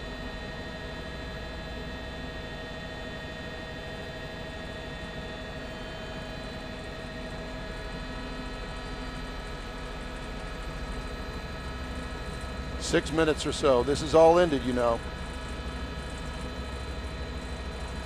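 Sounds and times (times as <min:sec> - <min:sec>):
helicopter running: 0:06.2 - 0:18.0.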